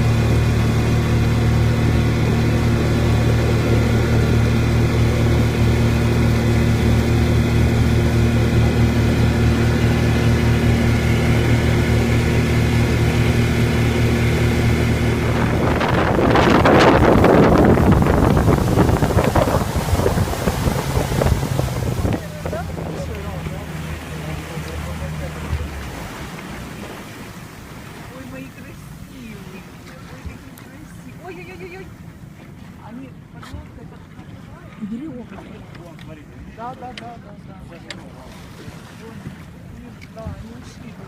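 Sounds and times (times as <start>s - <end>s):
motorboat engine running: 0.0s - 41.0s
water rushing and splashing: 0.0s - 41.0s
wind: 0.0s - 41.0s.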